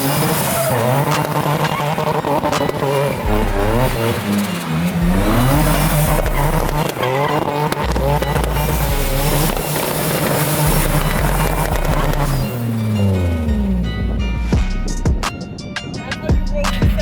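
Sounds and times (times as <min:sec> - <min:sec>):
tyres squealing: 0:00.0 - 0:14.3
car engine revving: 0:00.0 - 0:17.0.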